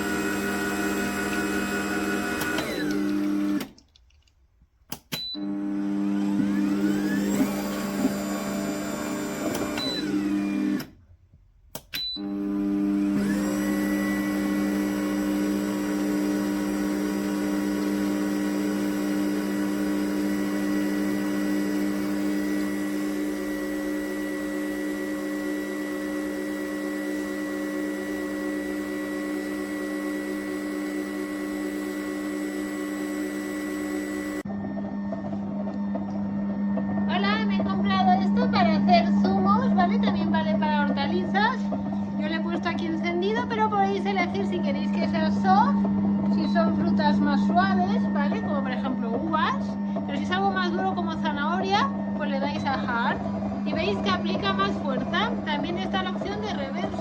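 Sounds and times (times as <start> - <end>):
juicer motor humming: 0.0 - 3.8, 5.3 - 11.0, 12.2 - 57.0.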